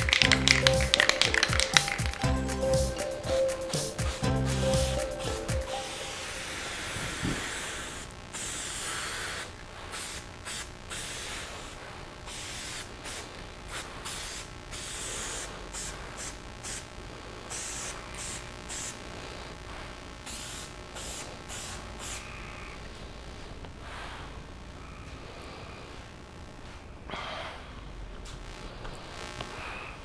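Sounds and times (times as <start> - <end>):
spray paint can hissing: 0.0 - 16.9, 17.5 - 19.0, 20.3 - 22.2.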